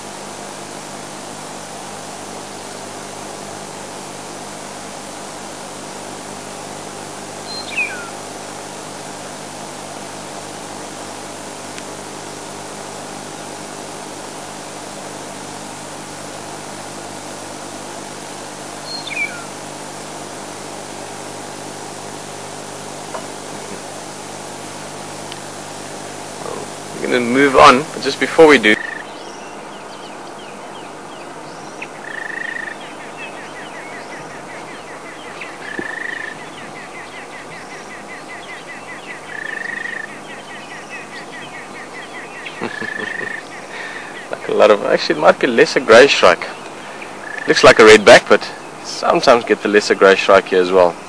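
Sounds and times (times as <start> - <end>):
steady low hum and hiss: 0.0 - 51.0
short falling bird calls: 18.8 - 19.5.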